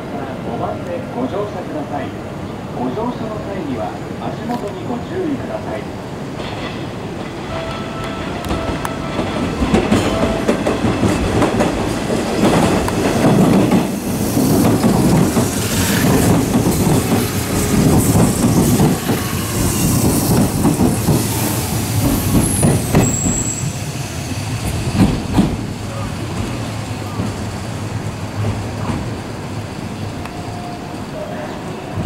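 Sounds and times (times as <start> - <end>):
train wheels clattering over rail joints: 8.4 - 23.6, 24.6 - 27.4
high wheel squeal: 21.2 - 24.2.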